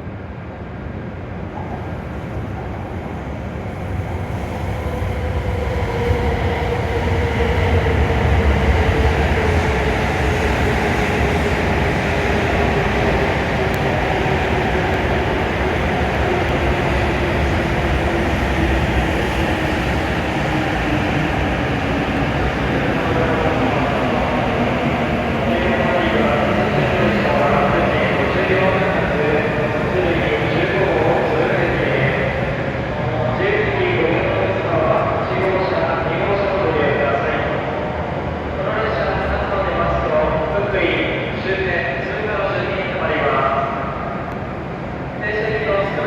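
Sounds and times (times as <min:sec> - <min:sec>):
train pulling in and slowing: 0:00.0 - 0:46.0.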